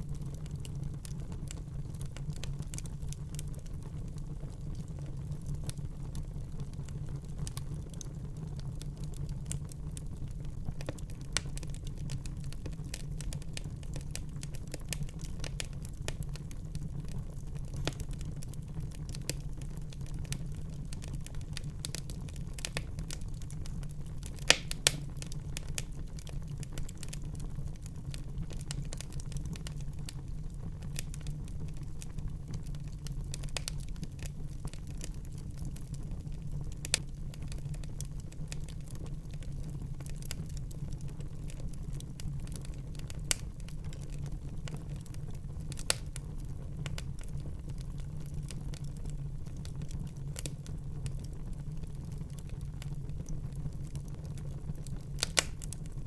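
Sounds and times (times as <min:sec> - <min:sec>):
fire crackling: 0:00.0 - 0:56.0
fire rumbling: 0:00.0 - 0:56.0
loud pops from fire: 0:17.3 - 0:27.4, 0:54.8 - 0:56.0.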